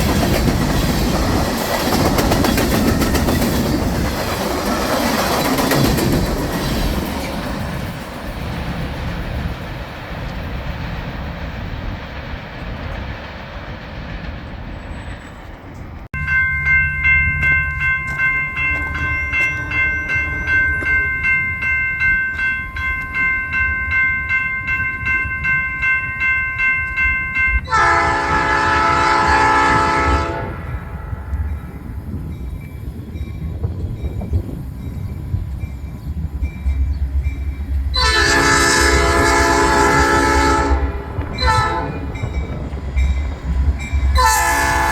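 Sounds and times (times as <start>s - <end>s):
train moving rumble: 0.0s - 44.9s
bell ringing: 16.2s - 27.8s
locomotive air horn: 27.7s - 31.4s, 37.9s - 42.2s, 44.1s - 44.9s.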